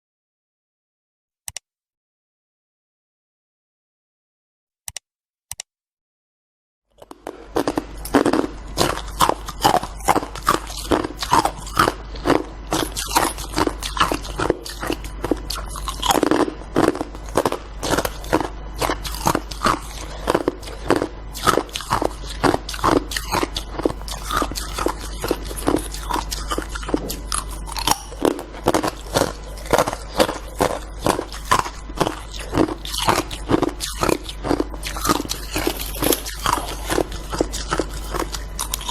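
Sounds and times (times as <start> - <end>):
short clicks: 4.9 - 5.7
steady low hum: 6.9 - 38.9
crunching of ice: 7.0 - 38.9.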